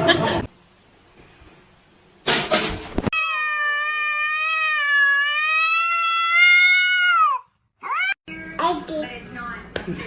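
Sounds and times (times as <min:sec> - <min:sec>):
cat yowling meow: 0:03.1 - 0:08.2.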